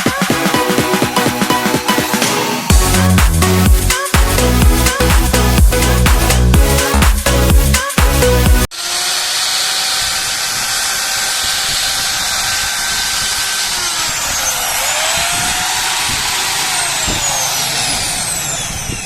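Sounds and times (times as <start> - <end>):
electric cutter motor whine: 8.6 - 19.0.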